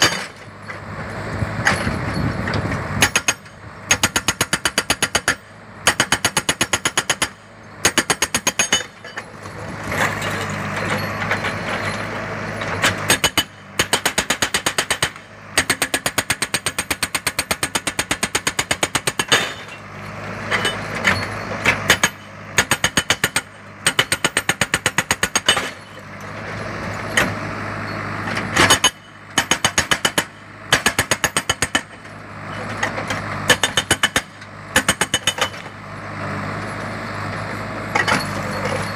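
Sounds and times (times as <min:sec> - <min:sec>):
hydraulic breaker hammering: 0:00.0 - 0:00.5, 0:03.0 - 0:09.3, 0:12.6 - 0:19.8, 0:20.4 - 0:26.0, 0:28.5 - 0:32.1, 0:32.7 - 0:35.8
diesel engine running: 0:00.0 - 0:38.9.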